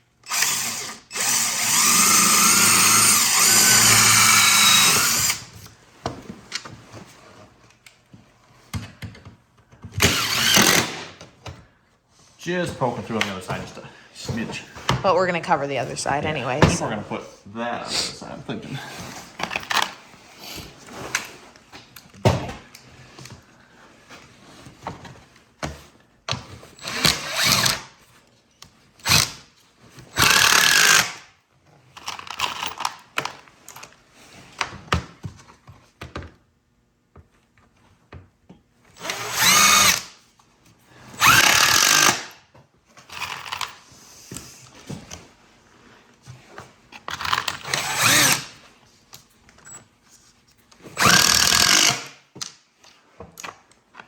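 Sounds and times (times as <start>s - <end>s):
cordless drill driving screws: 0.2s - 5.6s, 10.0s - 11.2s, 26.8s - 27.9s, 29.0s - 29.4s, 30.1s - 31.2s, 38.9s - 40.2s, 41.2s - 42.4s, 43.1s - 43.8s, 47.2s - 48.6s, 51.0s - 52.2s.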